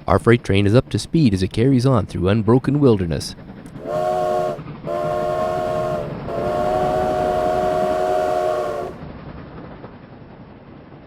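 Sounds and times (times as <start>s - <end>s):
train running noise: 3.2s - 11.0s
steam locomotive chime whistle: 3.8s - 9.0s.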